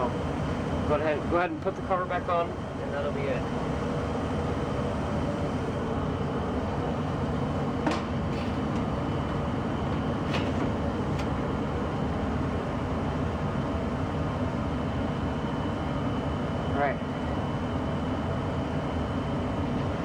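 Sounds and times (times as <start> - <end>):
gas furnace running: 0.0 - 20.0
metal cover clicks and knocks: 7.8 - 8.9.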